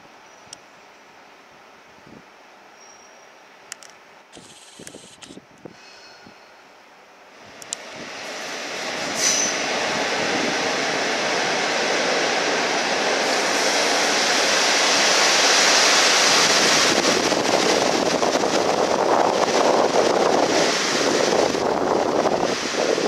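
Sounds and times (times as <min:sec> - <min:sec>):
train wheels rumbling on rails: 0:07.4 - 0:23.0.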